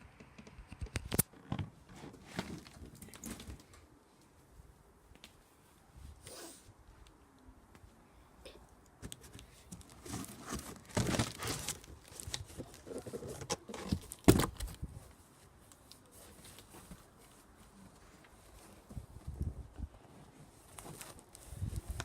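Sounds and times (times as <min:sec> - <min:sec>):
cardboard box crumpling and tearing: 0:09.7 - 0:14.8.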